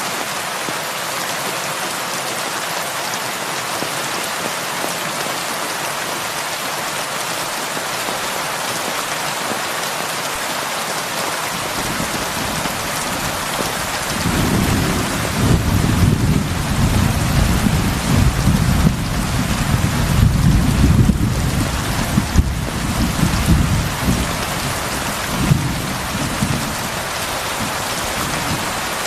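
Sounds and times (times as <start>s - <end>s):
heavy rain on a roof: 0.0s - 29.0s
thunder rumble: 11.7s - 28.9s.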